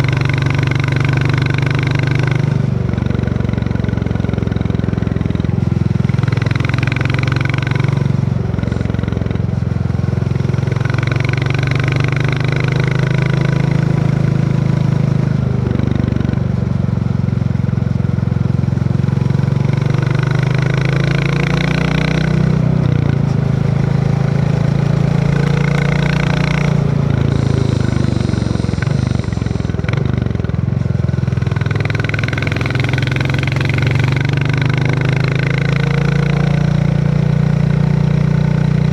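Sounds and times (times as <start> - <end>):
motorcycle engine running: 0.0 - 38.9
hiss: 25.3 - 30.4.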